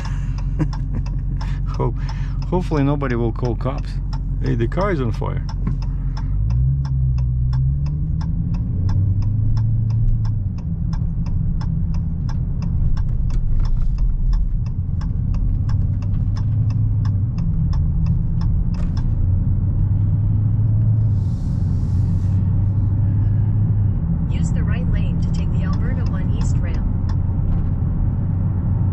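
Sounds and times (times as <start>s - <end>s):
car engine rumble: 0.0s - 28.9s
turn signal clicking: 0.0s - 28.9s.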